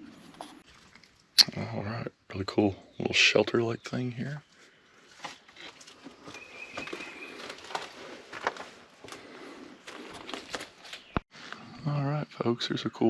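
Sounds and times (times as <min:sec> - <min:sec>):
footsteps crunching on loose rock: 0:05.1 - 0:11.2.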